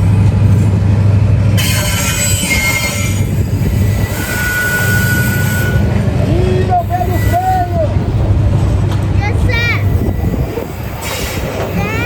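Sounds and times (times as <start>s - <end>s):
train cars rumbling: 0.0s - 12.0s
steel wheels squealing on rails: 1.6s - 8.1s, 9.5s - 12.0s.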